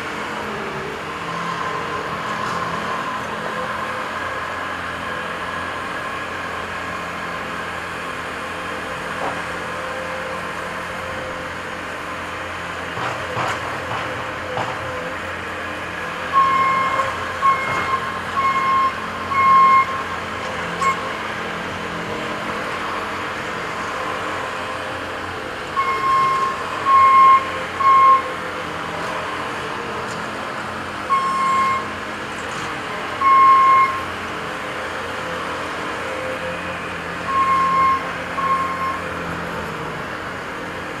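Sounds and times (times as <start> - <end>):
machine engines running: 0.0 - 41.0
backup alarm beeping: 16.4 - 20.0, 25.8 - 28.2, 31.1 - 31.9, 33.2 - 34.0, 37.3 - 39.0.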